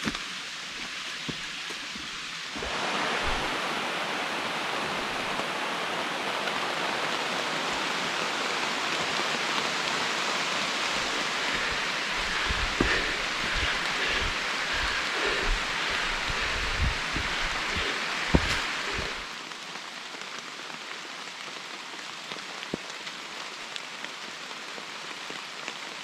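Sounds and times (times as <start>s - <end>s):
rain falling on forest: 0.0s - 26.0s.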